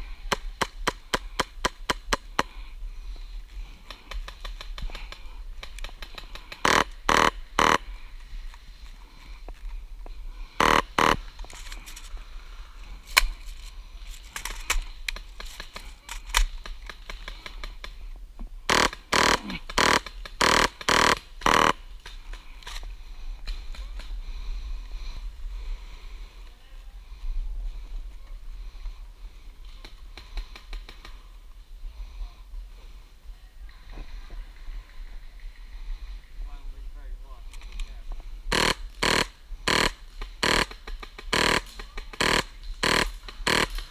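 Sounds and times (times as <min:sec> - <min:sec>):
sharp clicks: 0:03.8 - 0:07.8, 0:18.7 - 0:24.1, 0:38.5 - 0:43.9
airsoft gunfire bursts: 0:06.5 - 0:07.8, 0:10.6 - 0:11.2, 0:18.7 - 0:21.8, 0:38.5 - 0:43.9.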